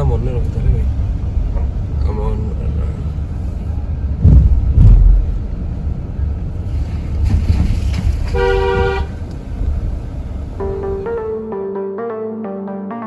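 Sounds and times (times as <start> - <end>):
vehicle rumbling on road: 0.0 - 11.5
loud thumps: 4.2 - 5.4
vehicle horn honk: 8.3 - 9.2
music: 10.6 - 13.0.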